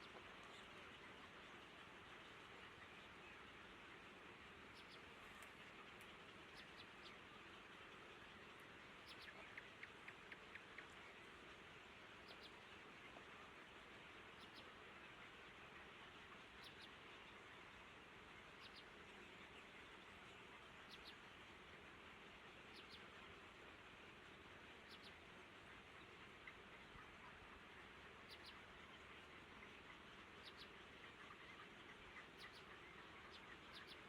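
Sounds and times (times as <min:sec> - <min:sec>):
steady low hiss: 0:00.0 - 0:34.0
faint high bird chirps: 0:04.7 - 0:07.2, 0:09.0 - 0:10.9, 0:16.6 - 0:17.0, 0:22.7 - 0:23.0, 0:24.8 - 0:25.2, 0:28.2 - 0:29.0, 0:30.3 - 0:34.0.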